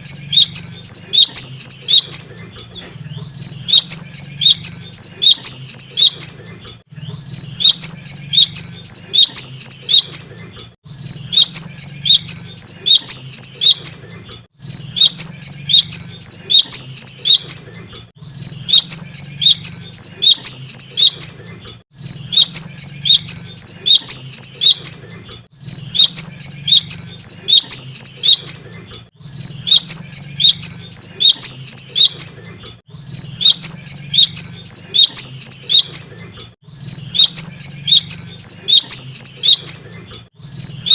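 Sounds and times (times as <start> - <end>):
tit singing high chirps: 25.7 - 28.6, 36.9 - 39.8.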